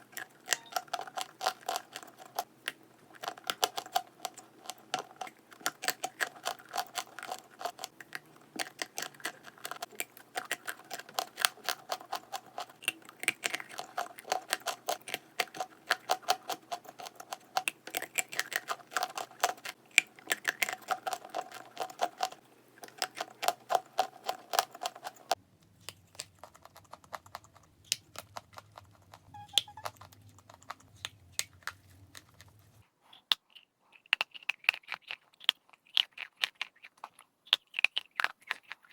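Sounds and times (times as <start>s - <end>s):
chalk being chewed and crunched: 30.0s - 38.9s.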